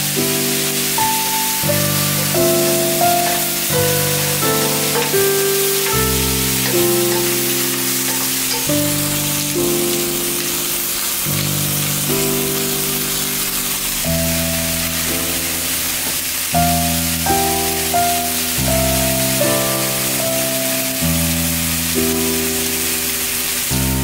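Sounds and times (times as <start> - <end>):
background music of slow chords: 0.0 - 15.6
food sizzling in frying pan: 0.0 - 24.0.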